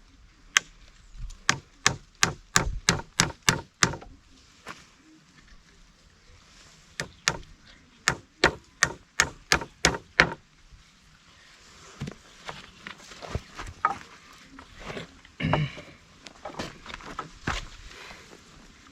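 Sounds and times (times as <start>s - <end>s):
tool chopping into wood: 1.5s - 4.1s, 7.0s - 7.5s, 8.1s - 10.4s.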